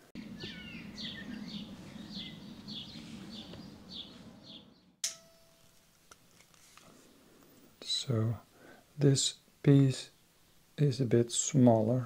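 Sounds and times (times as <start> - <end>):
small bird chirping: 0.2 - 5.0.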